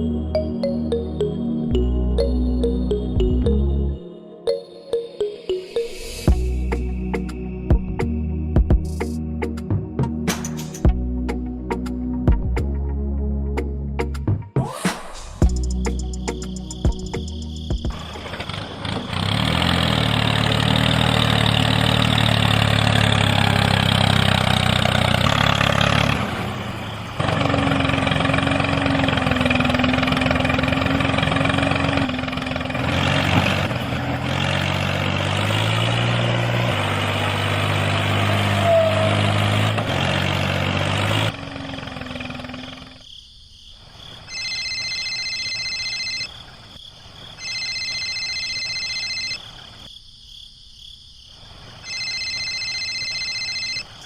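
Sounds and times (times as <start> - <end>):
tractor engine running: 15.4 - 43.0.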